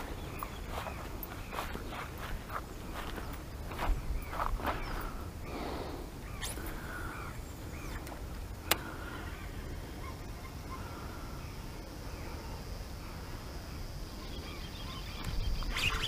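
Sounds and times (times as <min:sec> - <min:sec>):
wind rumble on microphone: 0:00.0 - 0:05.6
birds chirping: 0:00.0 - 0:16.0.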